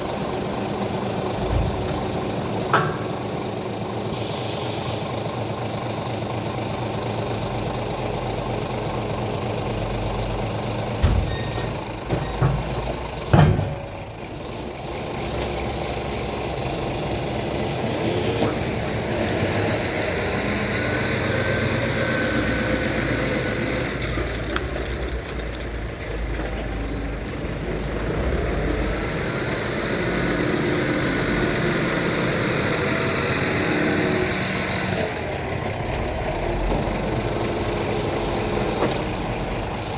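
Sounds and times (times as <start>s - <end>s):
truck diesel engine running: 0.0s - 39.9s
loud clanks and knocks: 1.2s - 3.7s, 10.8s - 14.3s.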